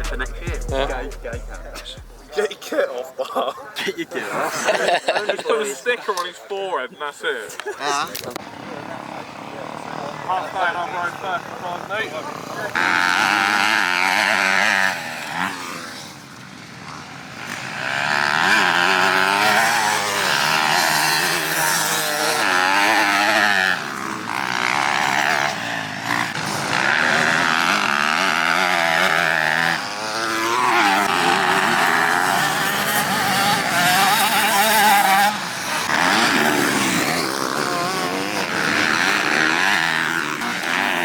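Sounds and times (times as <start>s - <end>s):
motocross bike engines revving: 0.0s - 3.0s, 3.9s - 41.0s.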